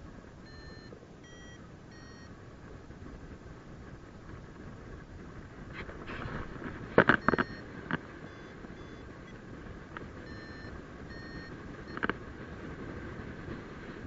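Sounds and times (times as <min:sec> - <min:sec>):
wind noise on microphone: 0:00.0 - 0:14.0
high electronic beeps: 0:00.5 - 0:02.3, 0:07.2 - 0:07.6, 0:08.3 - 0:09.0, 0:10.3 - 0:12.0.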